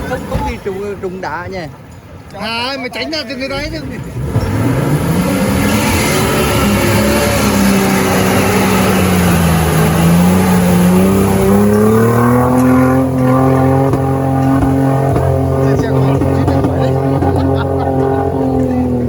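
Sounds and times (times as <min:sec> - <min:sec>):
engine revving hard: 0:04.0 - 0:19.0.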